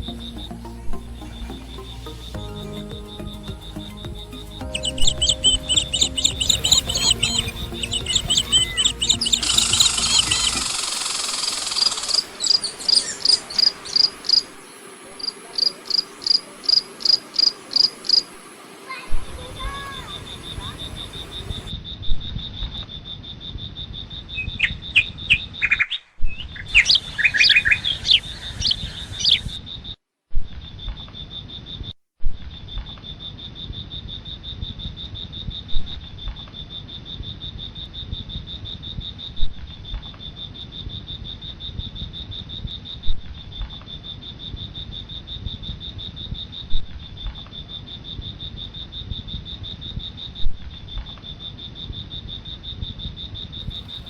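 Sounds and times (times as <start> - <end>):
insects droning: 0.0 - 21.9, 33.0 - 54.0.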